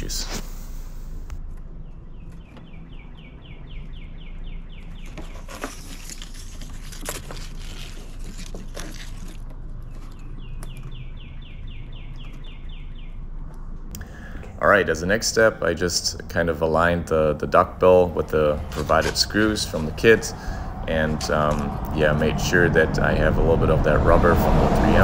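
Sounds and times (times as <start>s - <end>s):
songbird chirping: 1.4s - 6.1s, 9.7s - 25.0s
adhesive tape crinkling: 5.0s - 11.0s, 18.6s - 20.2s.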